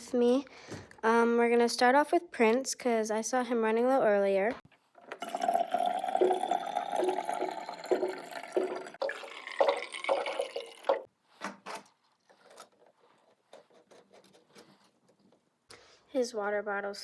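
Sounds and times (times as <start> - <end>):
water pouring into bottle: 5.1 - 11.1.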